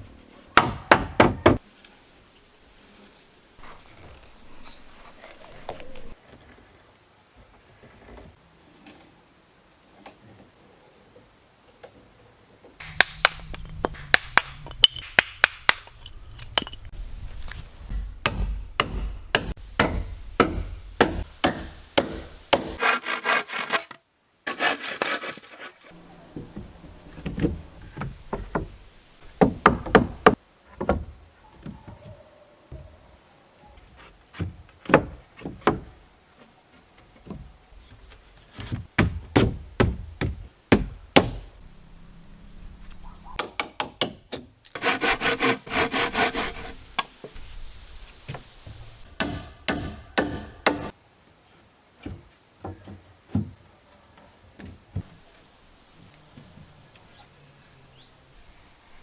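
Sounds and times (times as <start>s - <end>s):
knocks on timber: 0.6s - 1.6s, 26.4s - 31.1s, 38.6s - 41.5s
scraping or sawing wood: 21.1s - 27.2s, 44.7s - 47.6s.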